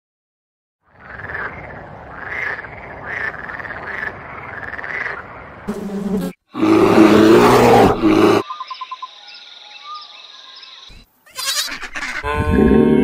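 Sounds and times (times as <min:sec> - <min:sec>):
bear growling: 0:06.5 - 0:08.4, 0:12.2 - 0:13.0
faint birdsong: 0:07.6 - 0:12.3
goats or sheep bleating: 0:11.3 - 0:13.0.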